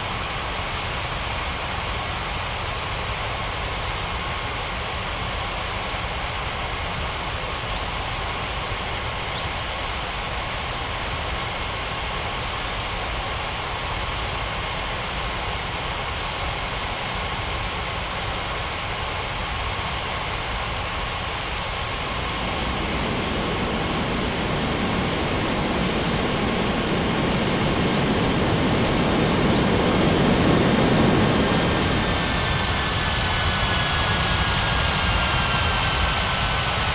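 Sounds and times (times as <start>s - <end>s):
jet engines running: 17.6s - 36.9s
faint pitch-shifting whine: 21.7s - 36.9s.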